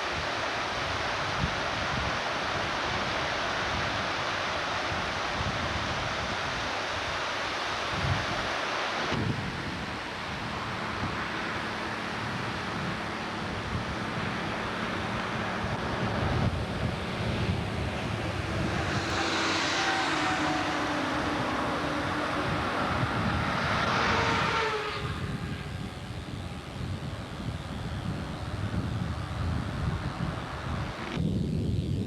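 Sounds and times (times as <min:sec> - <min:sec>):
engine hum: 0:00.0 - 0:31.2
wind on microphone: 0:00.0 - 0:32.0
creek rushing: 0:10.0 - 0:25.0.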